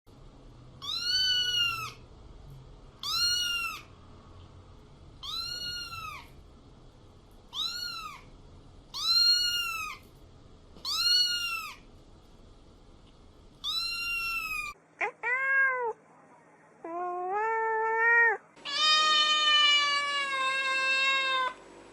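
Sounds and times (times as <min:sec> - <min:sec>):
cat meowing: 0:00.8 - 0:02.0, 0:03.0 - 0:03.9, 0:05.2 - 0:06.4, 0:07.5 - 0:08.3, 0:08.9 - 0:10.0, 0:10.8 - 0:11.8, 0:13.6 - 0:16.0, 0:16.8 - 0:21.6.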